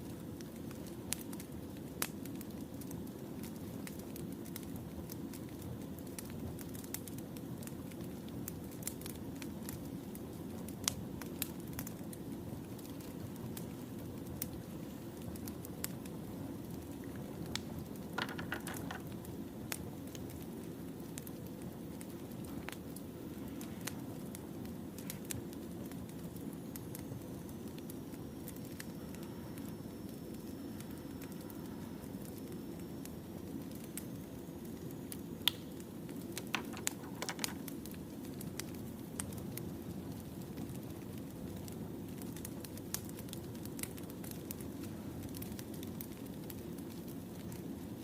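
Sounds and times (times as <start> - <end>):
fire burning with low rush: 0.0 - 48.0
firewood crackling and popping: 0.0 - 48.0.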